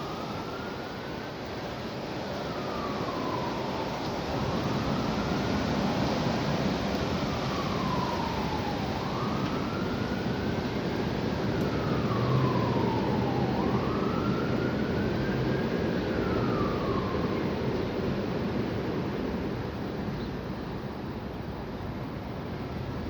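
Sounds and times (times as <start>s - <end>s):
siren wailing: 0.0s - 1.4s, 2.3s - 18.4s.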